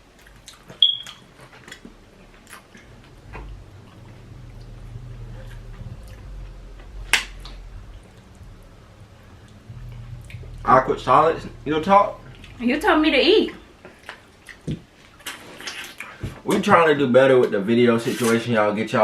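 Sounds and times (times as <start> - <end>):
wet chewing mouth clicks: 13.9 - 16.2.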